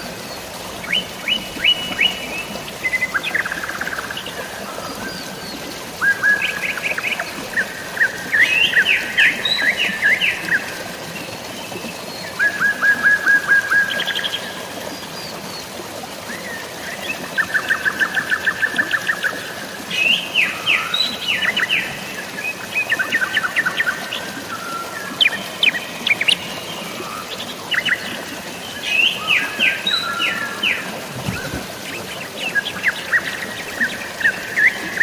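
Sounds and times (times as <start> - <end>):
songbirds singing: 0.0 - 14.4, 16.3 - 35.0
water hissing: 30.6 - 33.8.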